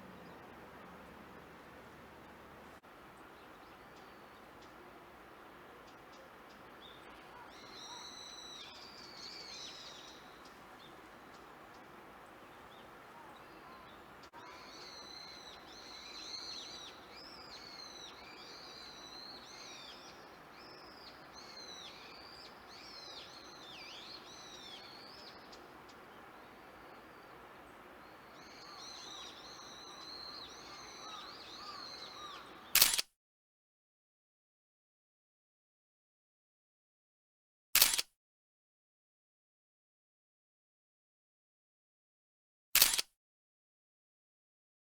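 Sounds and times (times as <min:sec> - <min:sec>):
songbirds chirping: 0:00.0 - 0:32.8.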